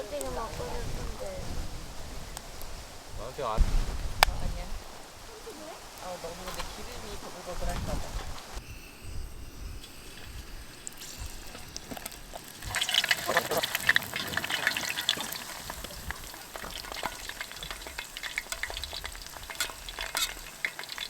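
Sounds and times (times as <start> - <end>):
dumplings frying in hot oil: 11.0 - 21.0.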